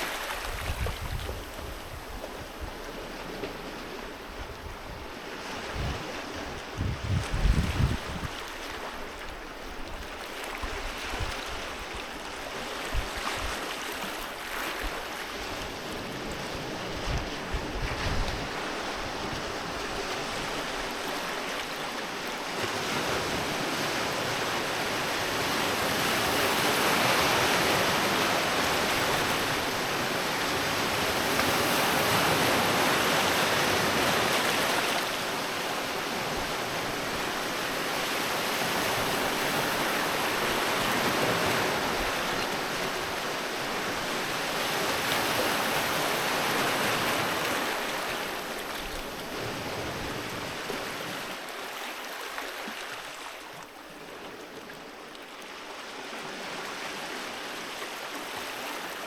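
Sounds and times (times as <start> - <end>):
sea waves washing onto beach: 0.0 - 59.0
wind buffeting microphone: 0.4 - 2.9, 4.2 - 8.4.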